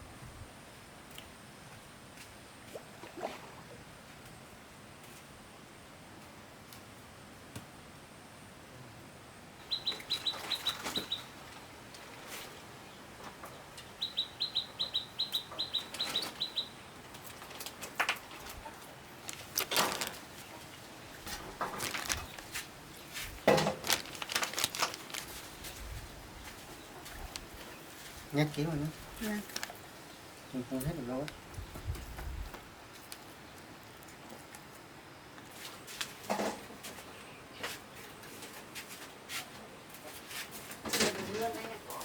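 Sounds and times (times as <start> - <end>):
small bird chirping: 9.6 - 11.4, 13.8 - 16.8
handling rustles and knocks: 17.2 - 28.3.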